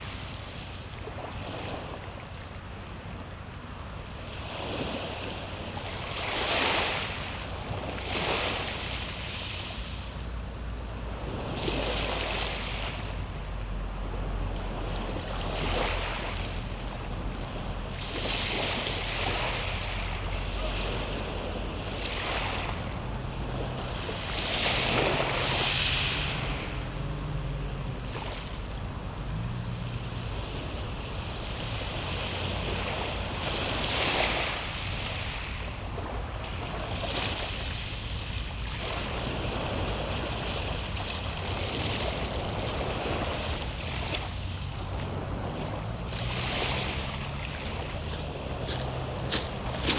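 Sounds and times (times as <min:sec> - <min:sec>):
low rumble of sea: 0:00.0 - 0:49.9
surf rushing in: 0:04.2 - 0:49.9.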